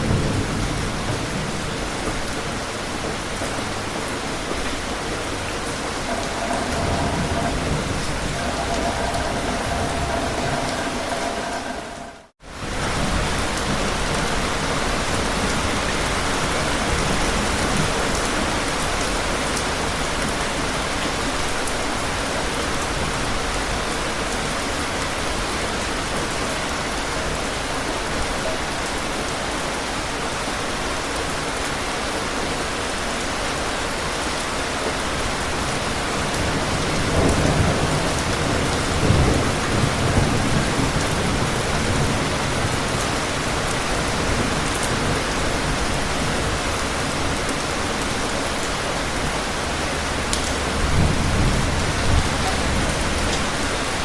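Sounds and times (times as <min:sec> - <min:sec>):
thunder rumbling: 0:00.0 - 0:15.7, 0:35.6 - 0:48.4, 0:49.0 - 0:54.0
heavy rain falling: 0:00.0 - 0:54.0.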